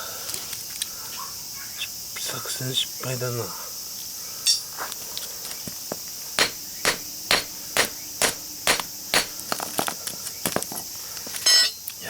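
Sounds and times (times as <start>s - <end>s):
crickets chirring: 0.0s - 12.0s
hammer striking iron core: 6.4s - 9.7s.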